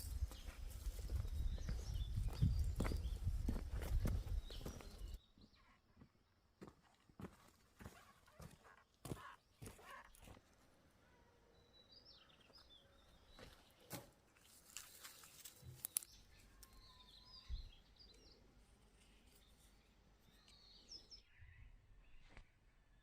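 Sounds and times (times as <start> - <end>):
faint bird chirps: 14.9 - 23.0.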